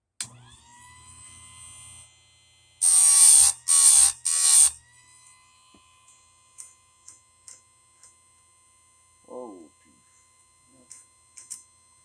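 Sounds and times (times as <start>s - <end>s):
motor whine: 0.3s - 6.2s
grinding wheel on metal: 2.8s - 4.8s.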